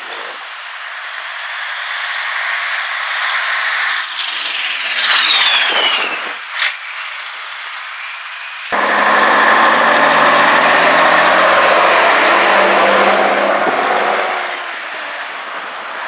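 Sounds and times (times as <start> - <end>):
falling whine: 8.7 - 16.0
old truck driving past: 8.8 - 16.0.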